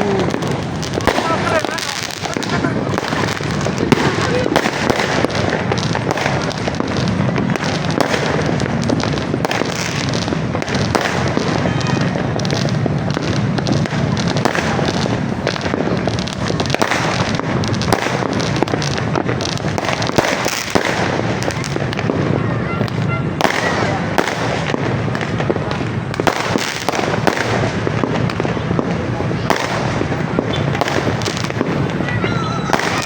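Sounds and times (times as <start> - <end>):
fireworks bangs and crackles: 0.0 - 33.0.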